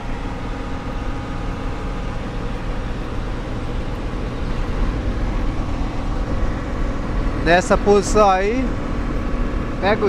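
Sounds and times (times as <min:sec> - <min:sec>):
car rumble from inside cabin: 0:00.0 - 0:10.0.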